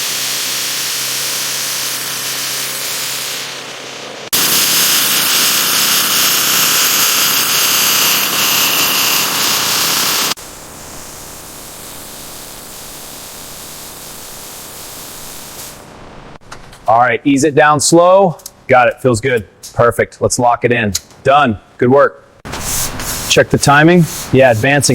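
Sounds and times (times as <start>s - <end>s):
loud steady hiss: 0.0s - 16.4s, 22.5s - 24.9s.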